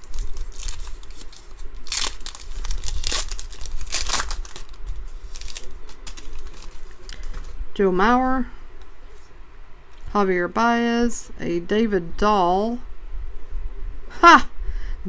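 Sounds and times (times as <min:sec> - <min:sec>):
trading cards rustling: 0:00.0 - 0:07.6.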